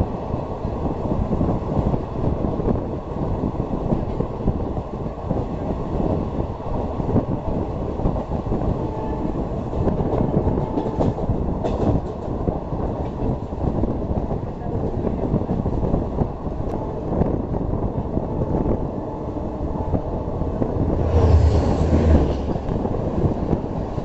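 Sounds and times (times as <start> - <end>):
train rumbling on rails: 0.0 - 24.0.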